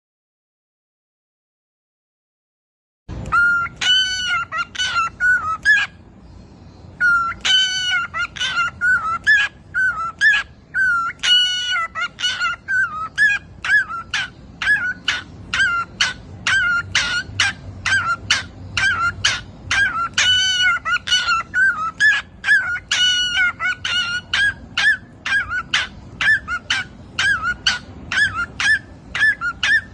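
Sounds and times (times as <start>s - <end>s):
budgerigar squawking: 3.3s - 6.0s, 7.0s - 29.9s.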